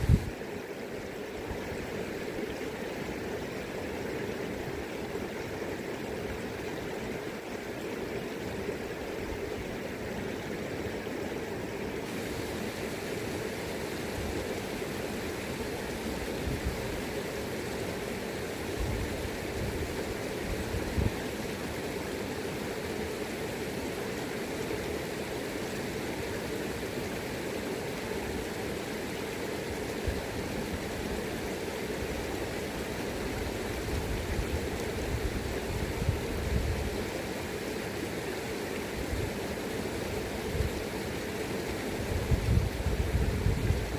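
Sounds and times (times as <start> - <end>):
wind buffeting microphone: 0.0 - 0.3, 42.1 - 43.9
river rushing over rocks: 0.0 - 43.9.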